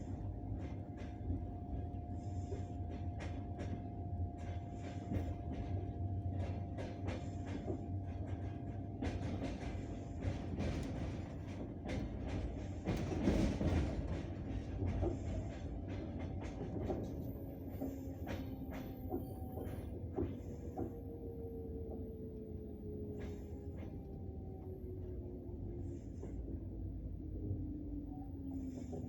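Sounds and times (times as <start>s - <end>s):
train rumble: 0.0s - 29.0s
train wheels clacking: 4.4s - 22.2s
whine of singing rails: 16.2s - 29.0s.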